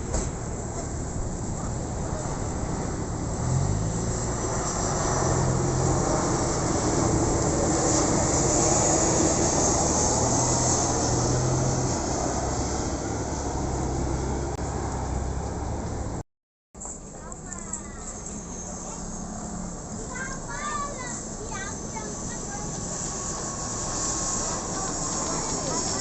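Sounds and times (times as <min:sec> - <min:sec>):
airliner passing overhead: 0:01.0 - 0:15.6, 0:20.7 - 0:26.0.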